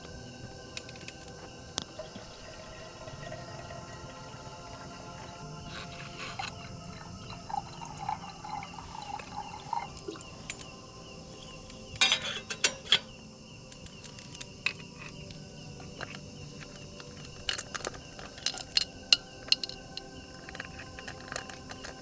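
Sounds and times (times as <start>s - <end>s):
night insects chirping: 0.0s - 22.0s
metal cookware clinking: 12.0s - 13.2s.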